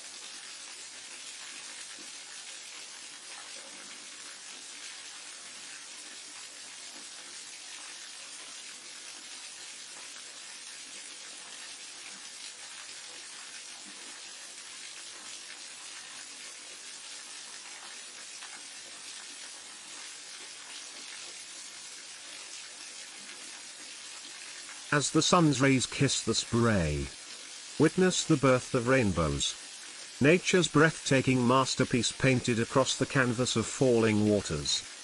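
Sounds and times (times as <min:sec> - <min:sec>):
waterfall rushing and splashing: 0:24.9 - 0:27.1, 0:27.8 - 0:29.6, 0:30.2 - 0:34.8.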